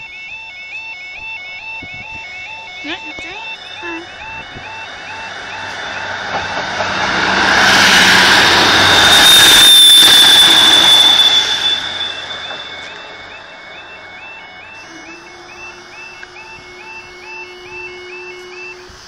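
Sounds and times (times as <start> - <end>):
level crossing warbling alarm: 0.0 - 19.0
thin high whine: 0.0 - 19.0
train engine and wheels on rails: 0.0 - 19.0.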